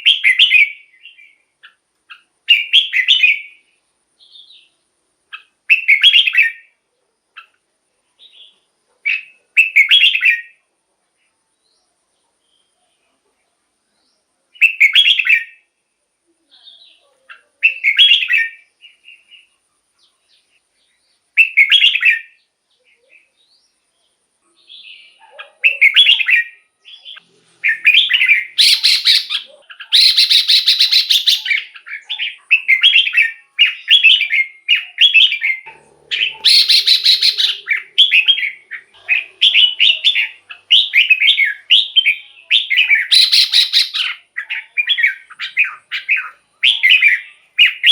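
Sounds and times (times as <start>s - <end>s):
bird singing chirpy phrases: 0.0s - 47.9s
bird rasping chatter: 27.6s - 42.0s, 42.6s - 47.9s.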